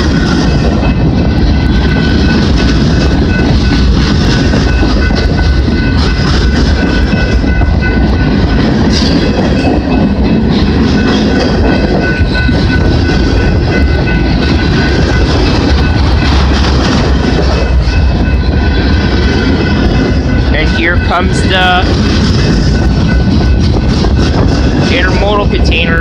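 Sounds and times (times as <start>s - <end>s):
freight train rumbling past: 0.0s - 26.0s
steel wheels clattering over rails: 0.0s - 26.0s.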